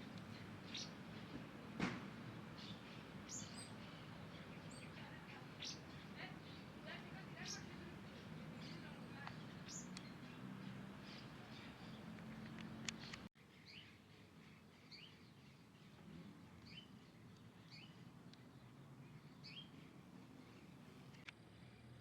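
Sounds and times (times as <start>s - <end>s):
faint bird chirps: 2.5s - 22.0s
sharp clicks: 12.2s - 13.3s.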